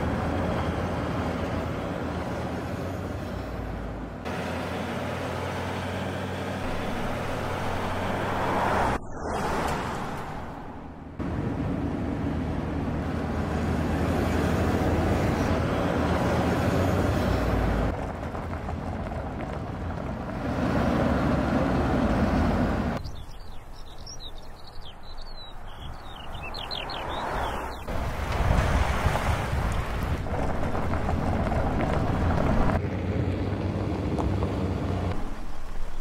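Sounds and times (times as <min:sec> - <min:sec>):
birds chirping: 0:21.5 - 0:28.0.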